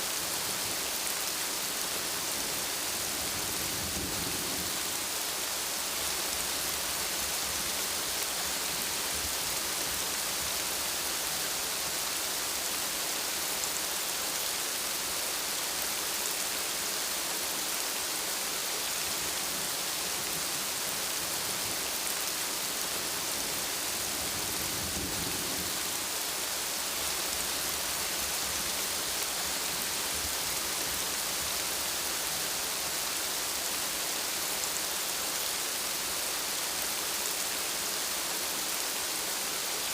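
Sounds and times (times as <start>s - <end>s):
dense rainfall hissing: 0.0s - 39.9s.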